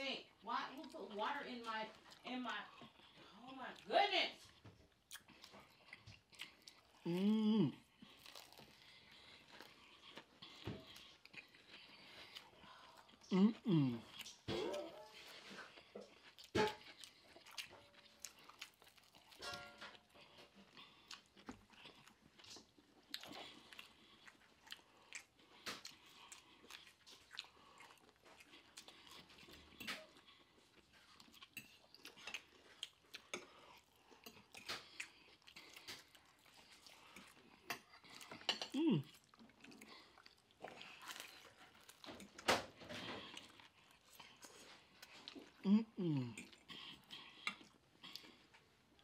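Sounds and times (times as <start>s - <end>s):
person humming mm: 7.0s - 7.8s, 13.3s - 14.1s, 38.7s - 39.1s, 45.6s - 46.5s
fork clinking: 19.4s - 20.0s.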